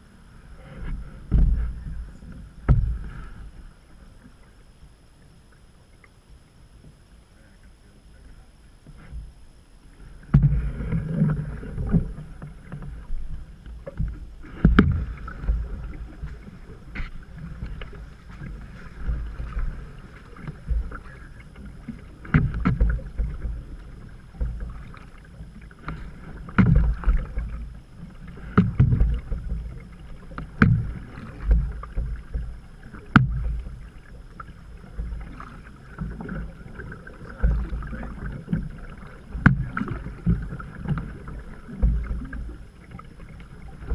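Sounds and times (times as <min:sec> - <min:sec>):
paddle knocking on canoe hull: 0:00.9 - 0:03.2, 0:10.3 - 0:13.0, 0:13.7 - 0:27.7, 0:28.3 - 0:43.9.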